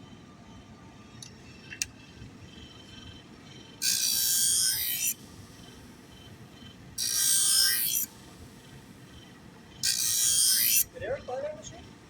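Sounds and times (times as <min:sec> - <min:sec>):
faint steady machine hum: 0:00.0 - 0:12.0
blade grinding on stone wheel: 0:03.8 - 0:05.2, 0:07.0 - 0:08.1, 0:09.8 - 0:10.9.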